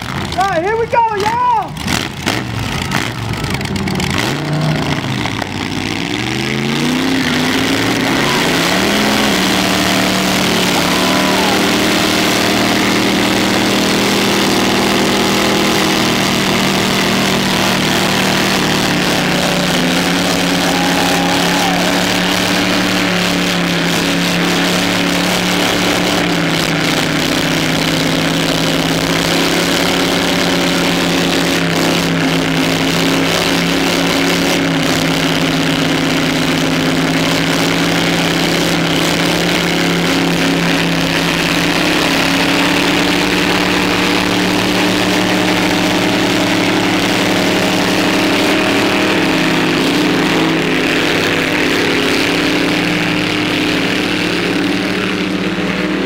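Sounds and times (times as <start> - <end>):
open-header engine revving: 0.0 - 56.0.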